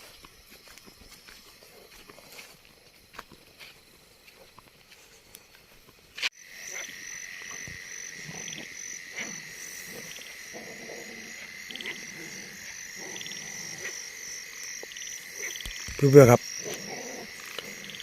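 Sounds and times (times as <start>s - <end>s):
high insect drone: 0.0s - 18.0s
frogs croaking: 6.4s - 18.0s.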